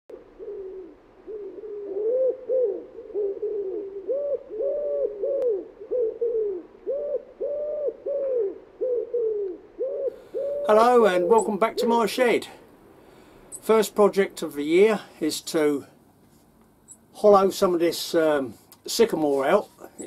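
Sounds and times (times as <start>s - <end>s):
pigeon cooing: 0.1s - 12.1s.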